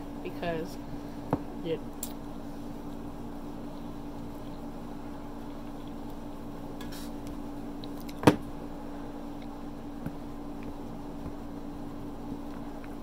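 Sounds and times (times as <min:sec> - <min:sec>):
steady low hum: 0:00.0 - 0:13.0
person chewing: 0:03.7 - 0:06.4, 0:07.1 - 0:08.2.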